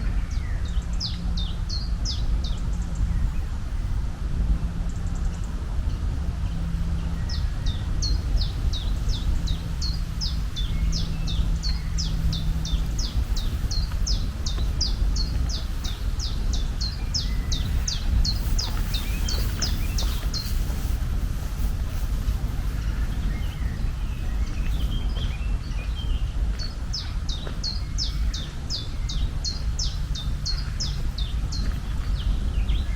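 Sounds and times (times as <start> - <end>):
low outdoor rumble: 0.0 - 32.9
bird chirping rapidly: 7.3 - 21.2.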